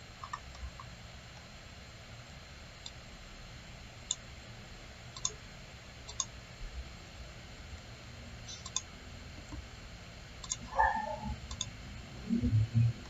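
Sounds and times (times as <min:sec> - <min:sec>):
faint room hum: 0:00.0 - 0:13.0
mouse buttons clicking: 0:05.2 - 0:05.4, 0:06.1 - 0:06.3, 0:08.5 - 0:08.9, 0:10.4 - 0:11.7.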